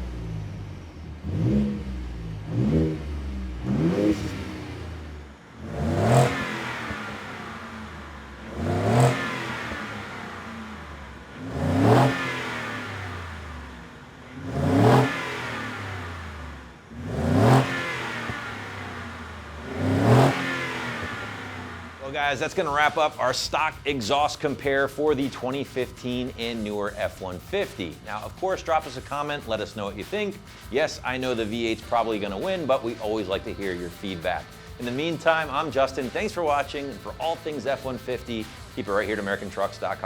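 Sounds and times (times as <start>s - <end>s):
truck engine revving: 0.0s - 40.0s.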